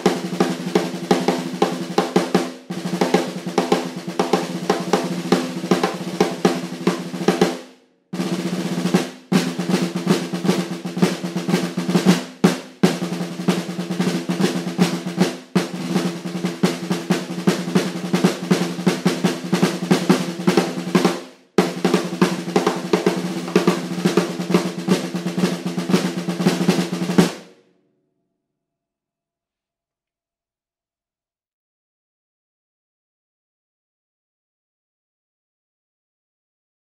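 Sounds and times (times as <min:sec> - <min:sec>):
snare drum strokes and rolls: 0:00.0 - 0:27.5.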